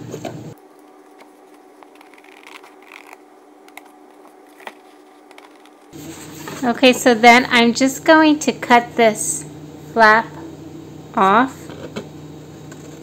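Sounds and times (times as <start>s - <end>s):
paper scraping: 1.0s - 6.6s
scissors snipping paper: 1.1s - 5.9s.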